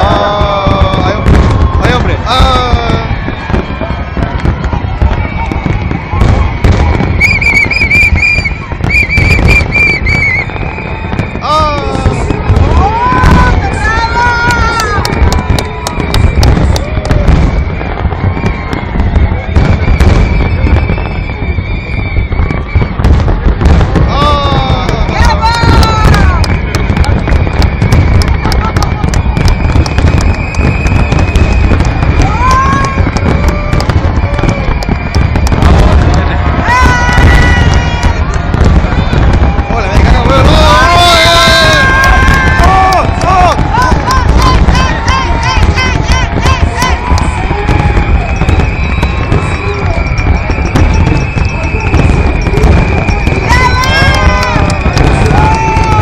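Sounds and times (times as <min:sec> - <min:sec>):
fireworks booming: 0:00.0 - 0:56.0
falling whistle tones: 0:04.5 - 0:12.8, 0:14.6 - 0:23.1, 0:26.1 - 0:38.2, 0:47.0 - 0:55.7
high warbling whistle: 0:07.1 - 0:11.1.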